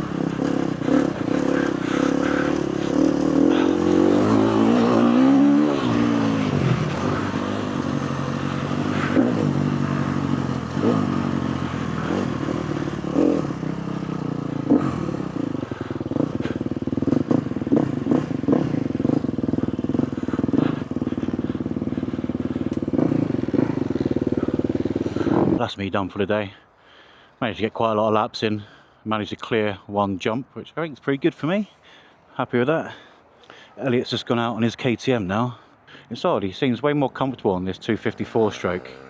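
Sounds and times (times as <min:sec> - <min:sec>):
motocross bike engine: 0:00.0 - 0:25.7, 0:37.1 - 0:39.0.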